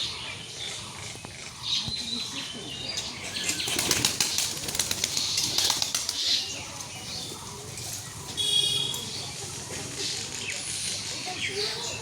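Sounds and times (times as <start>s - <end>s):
pigeons flapping wings: 3.4s - 6.4s.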